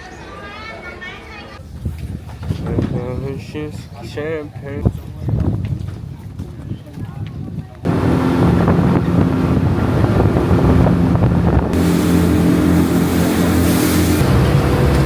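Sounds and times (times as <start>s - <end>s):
wind rushing over microphone: 4.8s - 15.0s
speedboat engine running: 7.9s - 15.0s
water hissing: 7.9s - 15.0s.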